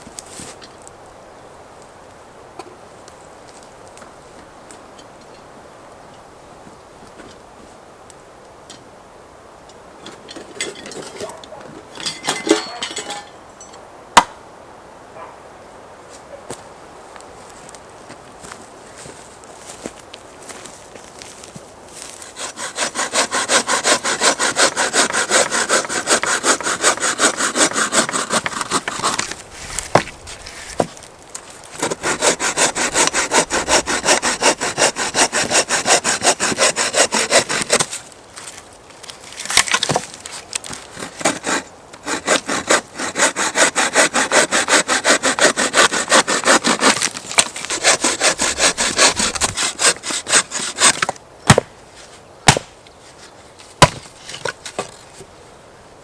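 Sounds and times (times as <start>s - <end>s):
hand saw cutting wood: 22.0s - 31.0s, 31.7s - 38.0s, 39.4s - 52.7s, 53.8s - 55.0s.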